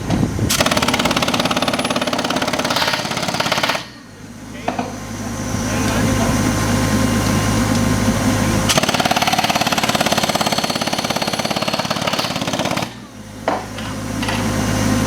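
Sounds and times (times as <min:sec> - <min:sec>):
engine running steadily: 0:00.0 - 0:11.3, 0:12.0 - 0:15.0
pneumatic air hammer rattling: 0:00.1 - 0:04.0, 0:08.7 - 0:14.5.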